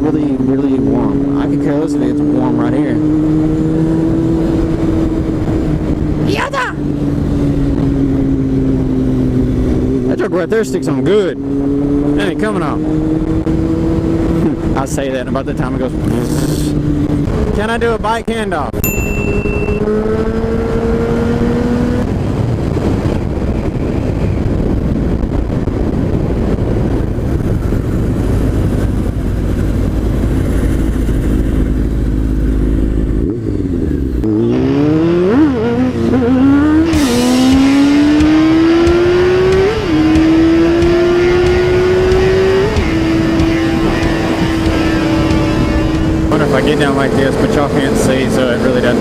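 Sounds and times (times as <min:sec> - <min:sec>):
wind noise on microphone: 0:00.0 - 0:10.1, 0:11.4 - 0:49.0
motorcycle engine revving: 0:00.0 - 0:17.7, 0:18.8 - 0:49.0.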